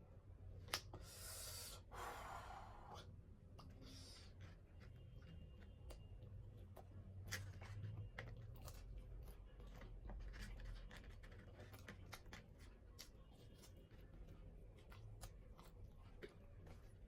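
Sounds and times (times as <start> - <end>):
person chewing food: 3.6 - 17.0.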